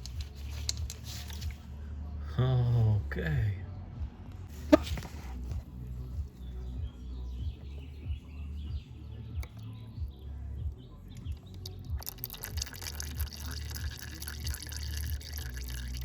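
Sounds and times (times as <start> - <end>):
steady low rumble: 0.0 - 12.1
oil dripping into a pan: 11.2 - 16.0.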